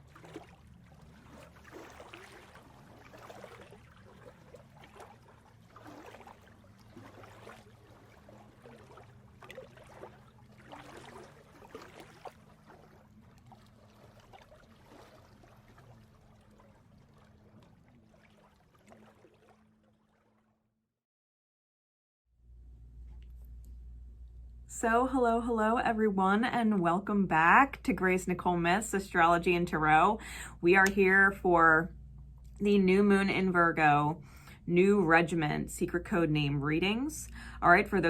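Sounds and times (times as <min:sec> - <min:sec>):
low steady hum: 0:00.0 - 0:20.0, 0:22.4 - 0:38.0
water trickling and gurgling: 0:00.0 - 0:20.6.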